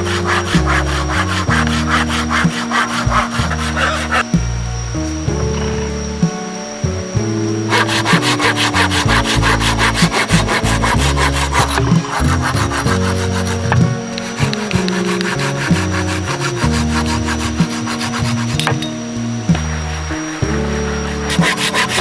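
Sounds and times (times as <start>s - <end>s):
fast rasping strokes: 0.0s - 5.3s, 5.9s - 22.0s
background music: 0.0s - 22.0s.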